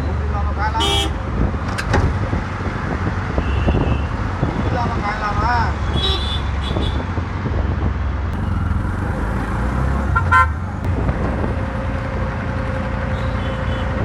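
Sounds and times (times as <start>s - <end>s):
road traffic rumbling: 0.0s - 14.0s
car horn toot: 0.8s - 1.2s, 5.9s - 7.0s, 10.2s - 10.6s.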